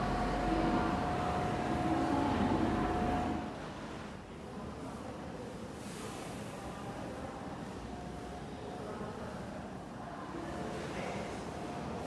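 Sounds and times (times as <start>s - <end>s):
electric train rumbling: 0.0s - 3.7s
high steady whine: 0.0s - 3.7s.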